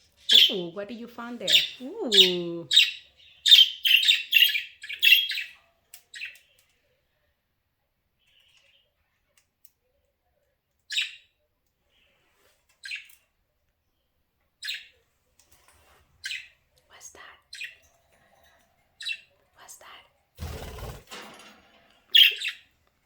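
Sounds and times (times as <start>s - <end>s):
budgerigar chirping: 1.5s - 5.6s.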